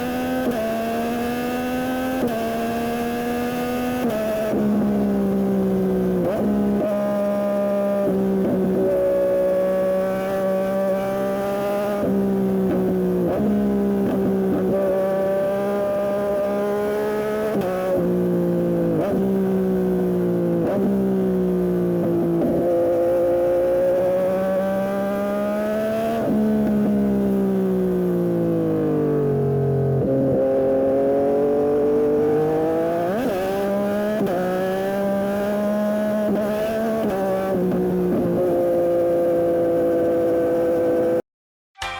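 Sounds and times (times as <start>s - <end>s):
motorcycle engine accelerating: 0.0s - 41.2s.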